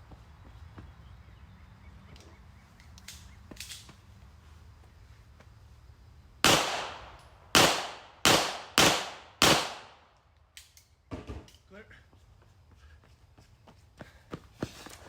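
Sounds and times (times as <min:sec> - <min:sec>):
gunshots with echo: 0:06.4 - 0:10.0.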